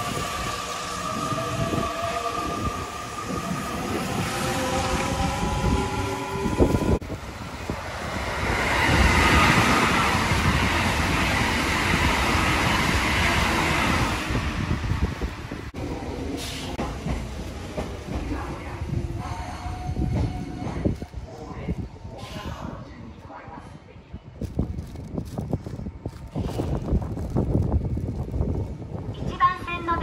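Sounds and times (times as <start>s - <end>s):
train passing with rushing roar: 0.0s - 21.3s.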